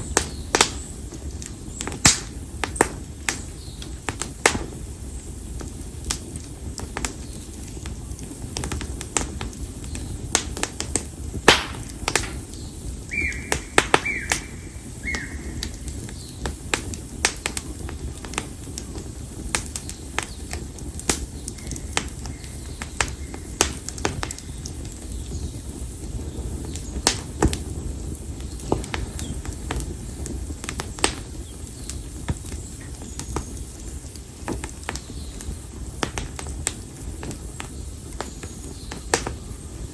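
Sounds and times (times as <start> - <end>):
fire crackling and popping: 0.0 - 39.9
low rumble of flame: 0.0 - 39.9
high whistling tone: 13.1 - 15.7.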